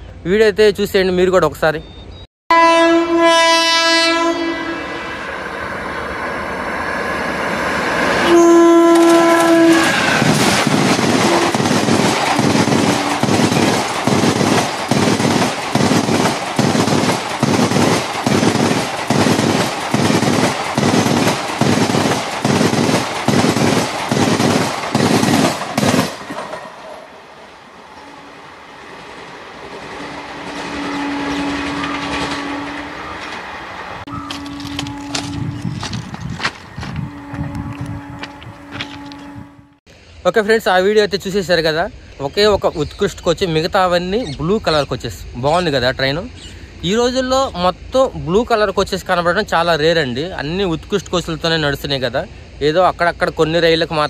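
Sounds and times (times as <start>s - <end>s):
train air horn blasts: 2.5s - 5.2s, 8.2s - 10.4s, 11.2s - 11.6s, 30.4s - 33.3s, 34.0s - 36.0s, 36.8s - 39.8s
train rumble: 4.8s - 42.0s.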